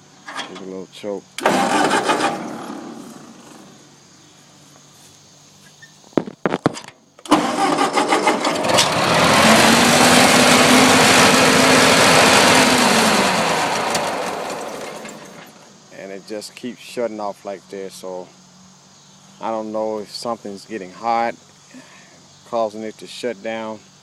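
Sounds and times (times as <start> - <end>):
tractor engine cranking: 0.2 - 0.8, 1.4 - 3.8, 6.6 - 15.7
tractor engine running: 1.4 - 3.8, 7.2 - 15.7.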